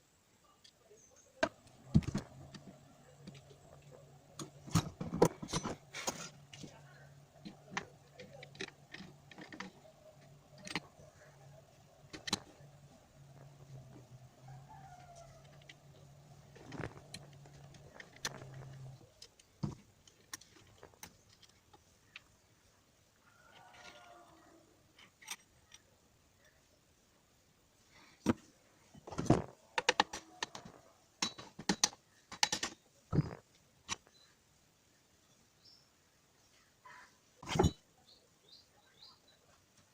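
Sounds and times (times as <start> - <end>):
faint low hum: 0.0 - 39.9
metal parts clicking and knocking: 1.4 - 22.4, 25.0 - 25.9, 29.0 - 34.1, 37.4 - 37.8.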